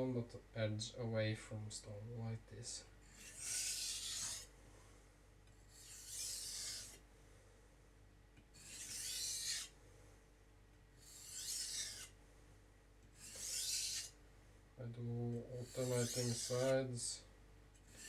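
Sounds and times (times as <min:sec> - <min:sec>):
knife rasping on whetstone: 0:03.1 - 0:04.5, 0:05.7 - 0:07.0, 0:08.6 - 0:09.8, 0:11.0 - 0:12.2, 0:13.2 - 0:14.2, 0:15.6 - 0:16.8.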